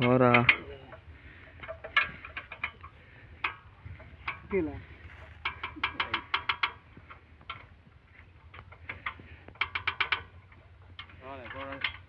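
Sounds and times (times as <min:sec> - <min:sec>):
ratchet spanner clicking: 0:00.0 - 0:04.6, 0:05.4 - 0:07.7, 0:08.4 - 0:12.0.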